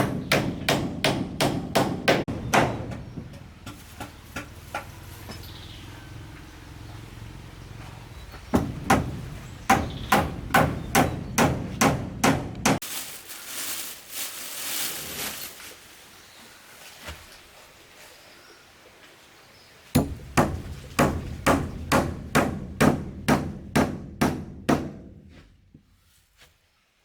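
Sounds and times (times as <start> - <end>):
hammer striking wood: 0.0 - 3.2, 8.5 - 12.8, 20.0 - 25.3
soft rustling: 12.8 - 18.4.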